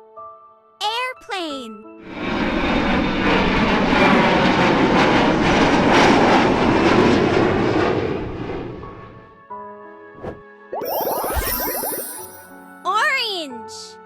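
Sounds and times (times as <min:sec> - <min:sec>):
aircraft passing by: 0:02.1 - 0:09.2.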